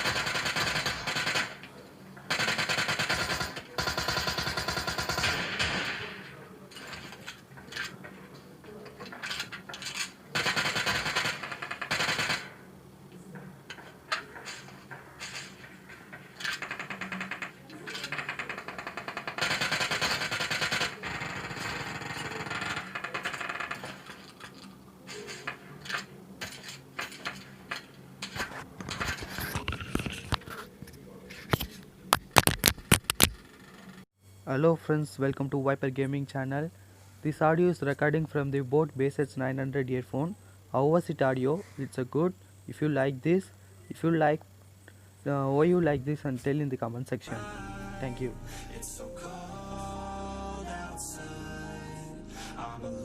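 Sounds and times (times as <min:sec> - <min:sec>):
sharp clicks: 0:31.5 - 0:33.9.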